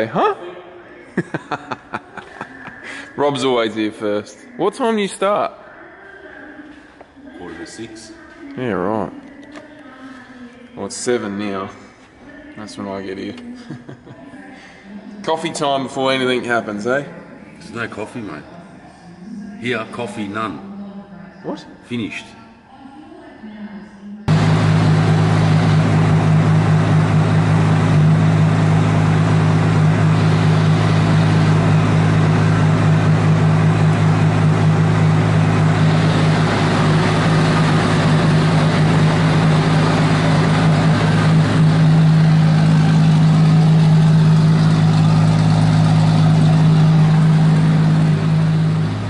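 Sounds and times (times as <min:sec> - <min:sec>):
car engine running: 0:24.3 - 0:49.0.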